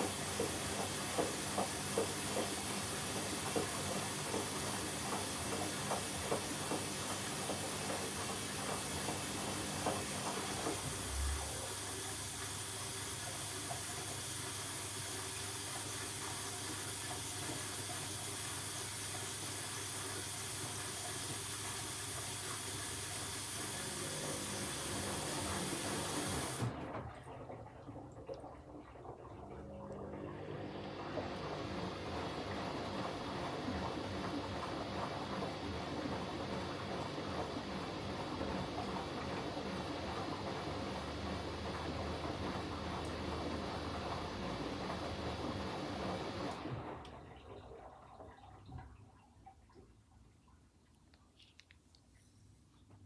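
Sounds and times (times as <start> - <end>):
water inlet hissing: 0.0 - 26.7
washing machine hum: 0.0 - 50.7.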